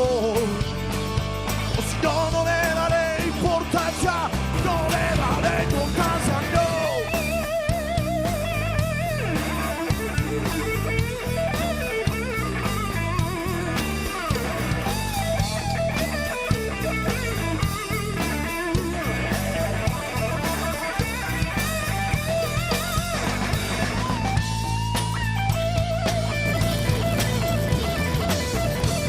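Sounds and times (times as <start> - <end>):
bass guitar: 0.0 - 29.0
drum kit: 0.0 - 29.0
electric guitar lead: 0.0 - 29.0.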